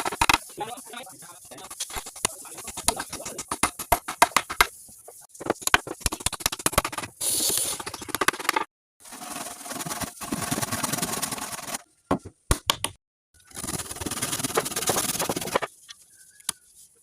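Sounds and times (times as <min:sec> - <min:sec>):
scraping or rubbing wood: 0:01.4 - 0:11.8, 0:13.6 - 0:15.8
sharp knocks and clicks on wood: 0:01.8 - 0:04.7, 0:12.1 - 0:13.0.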